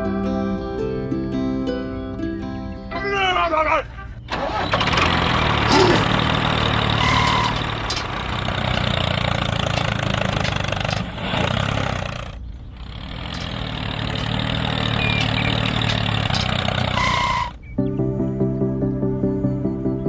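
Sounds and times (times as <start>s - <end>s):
tractor engine running: 0.0s - 18.2s.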